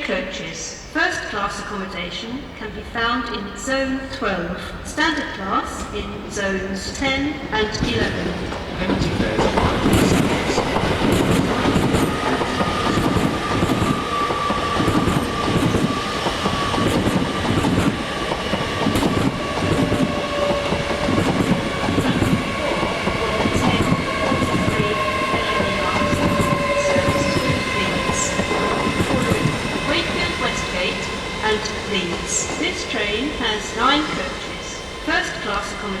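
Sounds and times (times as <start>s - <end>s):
train rumble: 5.5s - 36.0s
train wheels clattering on rails: 7.4s - 36.0s
steady whining tones: 8.9s - 36.0s.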